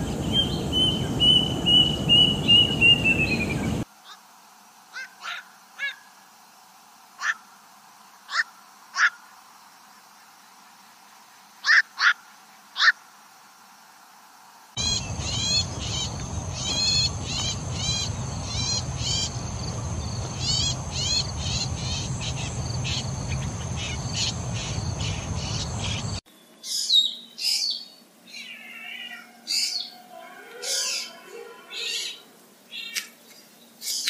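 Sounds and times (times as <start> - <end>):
drongo calls: 4.9 - 6.2, 7.2 - 7.6, 8.2 - 9.3, 11.6 - 13.0, 14.8 - 34.0.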